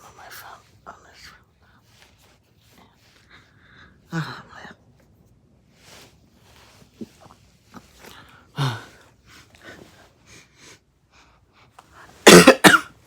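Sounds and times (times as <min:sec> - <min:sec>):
person whispering: 0:00.0 - 0:02.0
person coughing: 0:12.2 - 0:12.9.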